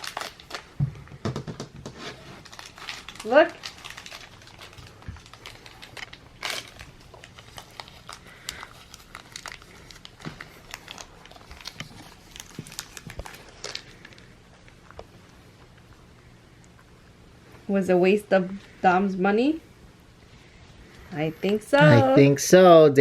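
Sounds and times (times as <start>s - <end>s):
packaging crinkling: 0.0s - 15.8s.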